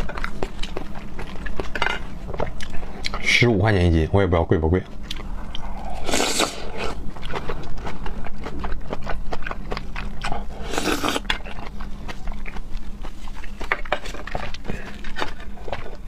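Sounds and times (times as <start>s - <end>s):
wet chewing mouth sounds: 0.0s - 1.8s, 4.8s - 16.0s.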